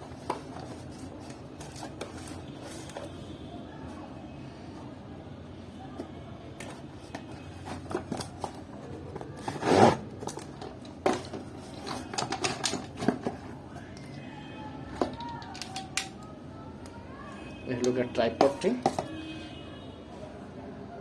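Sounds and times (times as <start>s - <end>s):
packaging rustling and crinkling: 6.6s - 13.6s.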